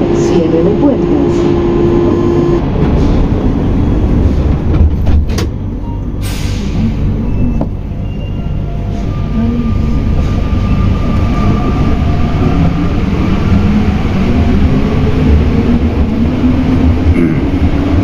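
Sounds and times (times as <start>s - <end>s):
metro train rumble: 0.0s - 18.0s.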